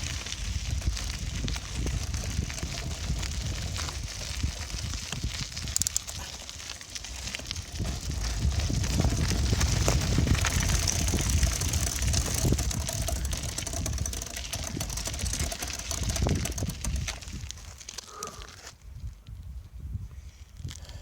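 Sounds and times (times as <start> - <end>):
wind buffeting microphone: 0.0 - 17.8, 18.8 - 20.8
bicycle rattling and rolling: 0.0 - 18.8
small clicks and knocks: 5.1 - 6.2, 9.6 - 18.1.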